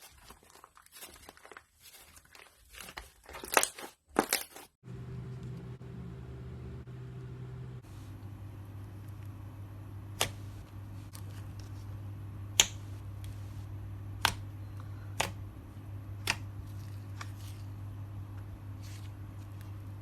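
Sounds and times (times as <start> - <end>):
low steady hum: 4.8 - 20.0.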